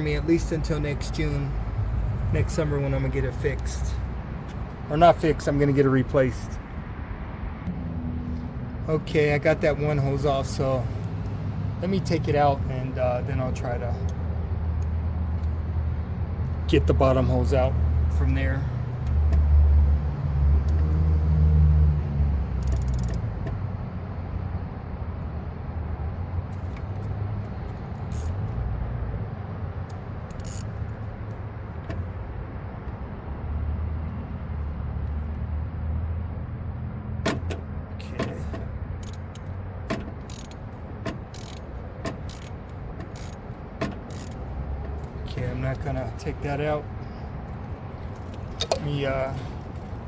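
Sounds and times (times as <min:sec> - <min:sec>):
tools clicking on metal: 0:22.6 - 0:23.3, 0:28.1 - 0:28.4, 0:29.9 - 0:30.8, 0:39.0 - 0:45.2.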